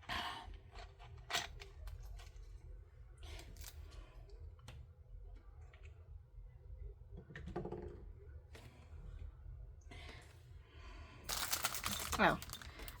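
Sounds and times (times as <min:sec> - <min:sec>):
packaging rustling: 0:11.3 - 0:13.0
plastic items clicking: 0:11.3 - 0:13.0.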